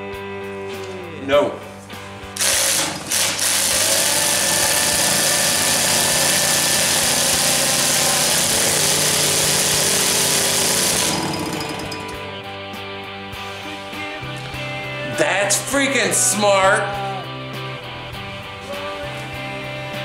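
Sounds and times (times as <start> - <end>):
cordless drill spinning engine: 2.4 - 12.4.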